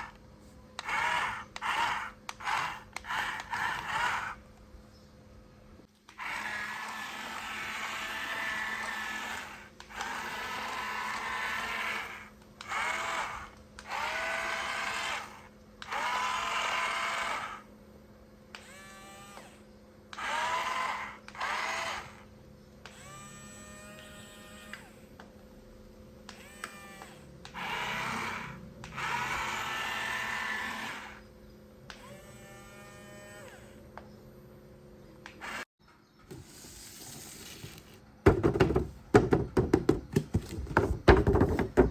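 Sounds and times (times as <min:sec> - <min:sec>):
toy electric motors whirring: 0:00.8 - 0:04.6, 0:06.0 - 0:17.7, 0:18.5 - 0:25.1, 0:26.3 - 0:31.3, 0:31.9 - 0:33.9.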